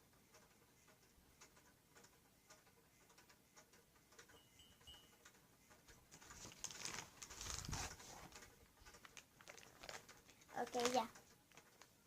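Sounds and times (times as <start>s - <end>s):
soft rustling: 6.1s - 12.0s.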